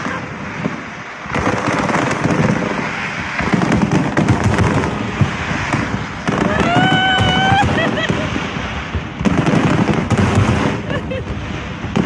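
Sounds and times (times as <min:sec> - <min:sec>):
fireworks crackling and booming: 0:00.0 - 0:12.0.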